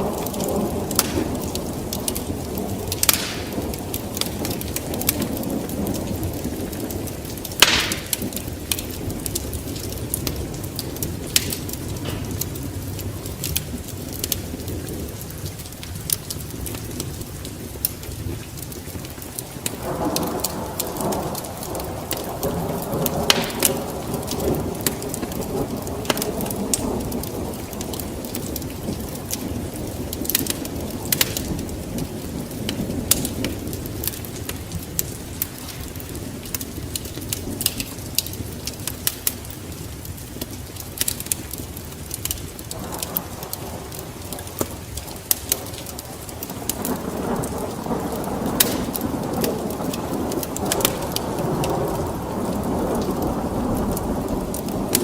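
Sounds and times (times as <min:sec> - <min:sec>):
rolling thunder: 0:00.0 - 0:17.8, 0:19.3 - 0:38.8, 0:41.6 - 0:55.0
steady rain: 0:00.0 - 0:55.0
wood fire crackling: 0:00.0 - 0:55.0.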